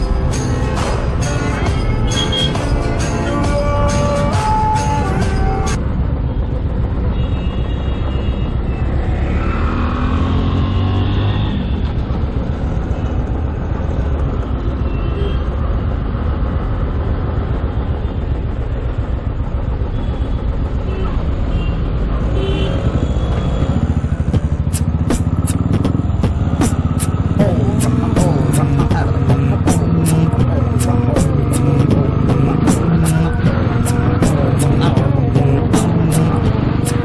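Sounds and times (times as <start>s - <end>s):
city traffic: 0.0s - 37.0s
motorcycle engine idling: 22.7s - 37.0s.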